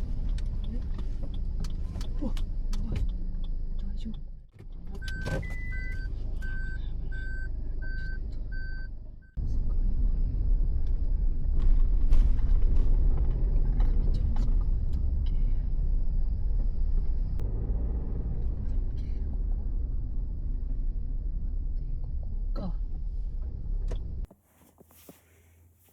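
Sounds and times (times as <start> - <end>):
car engine and road noise: 0.0 - 25.9
car warning beeps: 5.0 - 9.4.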